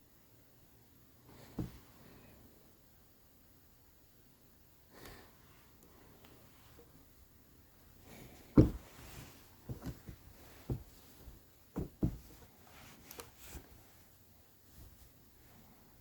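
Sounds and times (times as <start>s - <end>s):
soft knocks and thumps: 1.4s - 1.9s, 8.4s - 12.6s.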